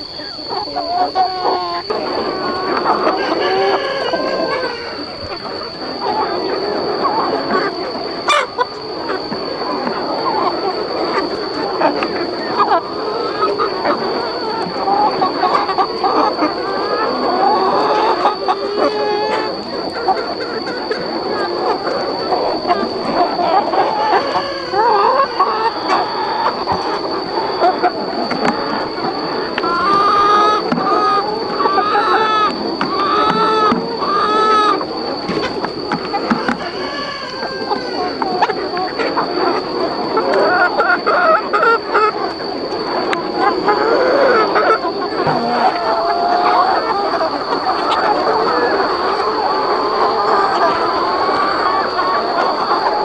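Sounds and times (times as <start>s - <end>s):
chickens clucking: 0.0s - 53.0s
steady high whine: 37.5s - 53.0s.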